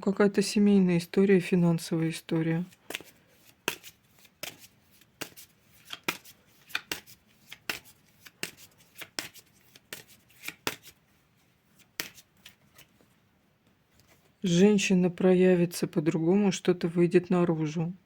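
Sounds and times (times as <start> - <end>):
cards being shuffled: 2.3 - 13.1.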